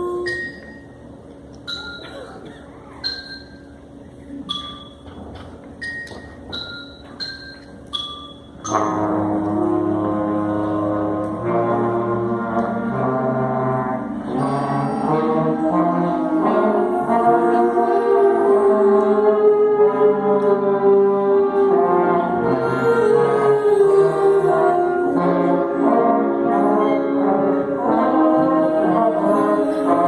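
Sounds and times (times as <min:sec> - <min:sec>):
school band brass chords: 0:08.6 - 0:30.0.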